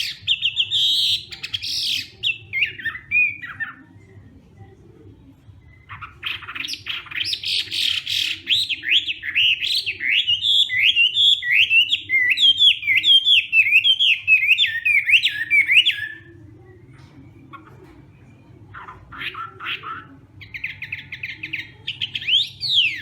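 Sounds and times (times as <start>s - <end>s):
bird singing loudly: 5.8s - 16.3s, 19.1s - 23.0s.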